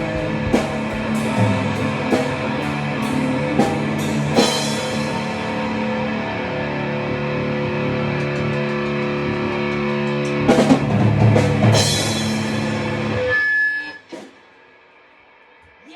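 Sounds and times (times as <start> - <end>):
drum and cymbal hits: 0.0 - 6.4, 10.0 - 13.3, 14.0 - 14.6
distorted guitar chord: 0.0 - 13.6.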